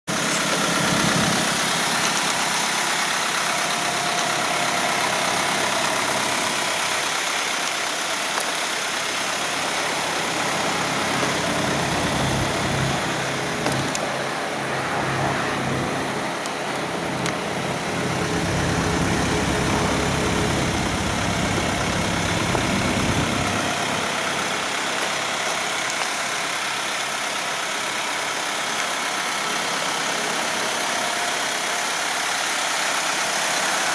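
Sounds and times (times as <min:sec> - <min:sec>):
truck engine idling: 0:00.1 - 0:33.9.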